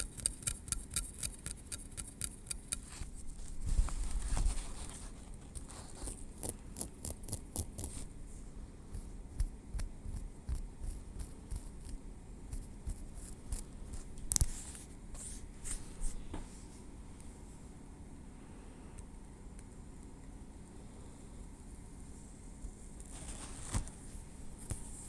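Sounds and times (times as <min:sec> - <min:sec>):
tweezers clicking: 0:00.0 - 0:02.9, 0:06.4 - 0:07.9.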